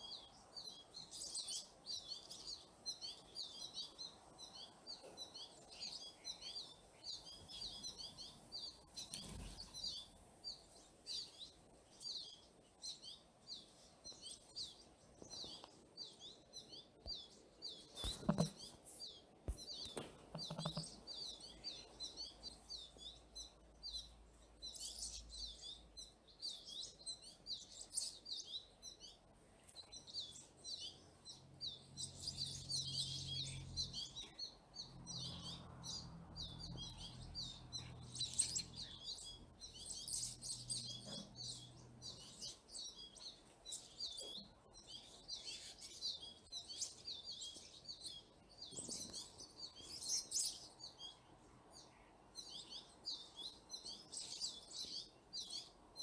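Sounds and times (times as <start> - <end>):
birds chirping and twittering: 0.0 - 56.0.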